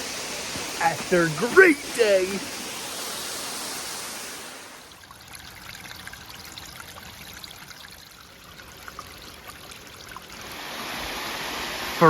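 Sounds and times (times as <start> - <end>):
creek water flowing: 0.0 - 12.0
small water splashes and drips: 4.9 - 10.7.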